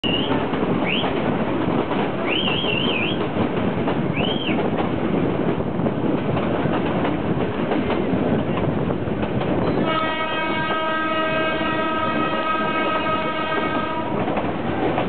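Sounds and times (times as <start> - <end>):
train rumbling on track: 0.0 - 15.0.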